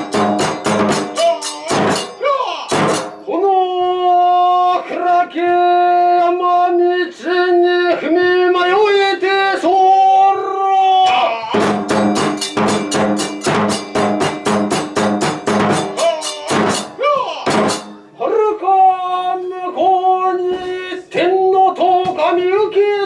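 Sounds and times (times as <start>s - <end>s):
drum beat: 0.0s - 3.3s, 11.5s - 18.2s
hand cymbals: 0.0s - 3.4s, 11.6s - 18.2s.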